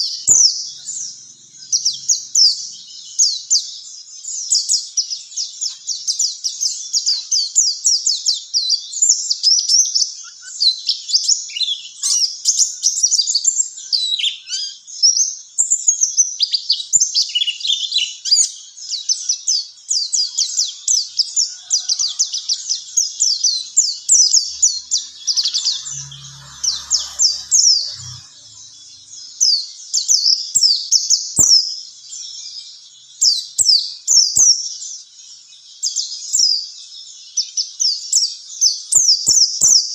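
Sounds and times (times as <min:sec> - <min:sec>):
bird chirping and trilling: 0:00.0 - 0:07.6, 0:16.0 - 0:32.6.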